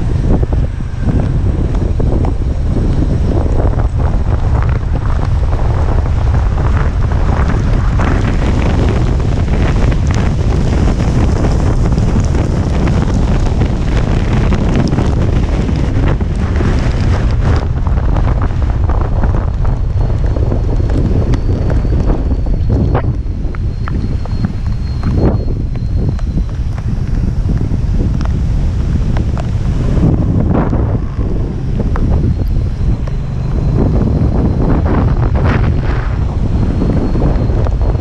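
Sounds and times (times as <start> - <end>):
strong wind buffeting microphone: 0.0 - 38.0
wind-driven rain hiss: 0.0 - 38.0.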